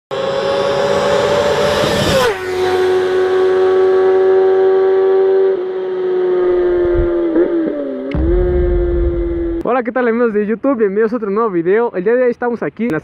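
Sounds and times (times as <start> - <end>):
motorcycle engine revving: 0.1 - 9.6.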